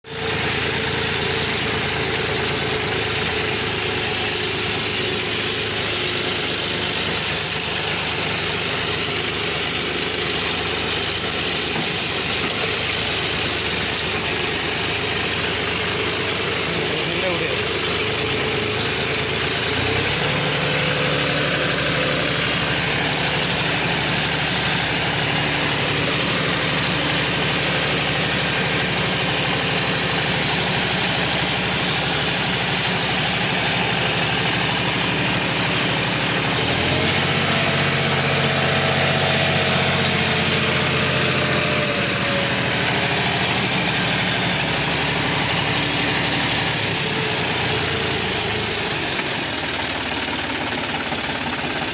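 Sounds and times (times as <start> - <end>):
tractor diesel engine running: 0.0 - 51.9.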